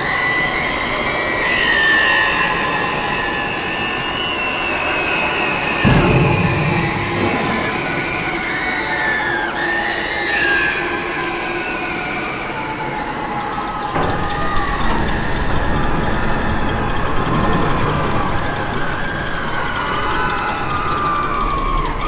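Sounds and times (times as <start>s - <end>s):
high metallic squeals: 0.0s - 22.0s
dense rumble: 5.8s - 8.9s.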